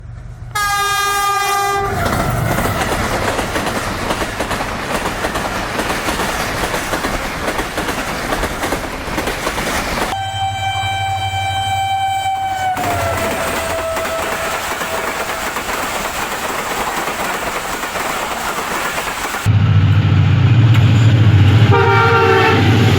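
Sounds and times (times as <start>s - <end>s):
train passing with loud rush: 0.0s - 22.9s
train horn blast: 0.5s - 2.4s, 10.1s - 15.6s, 19.8s - 22.9s
wheels clattering on rails: 1.9s - 10.2s, 12.4s - 19.5s.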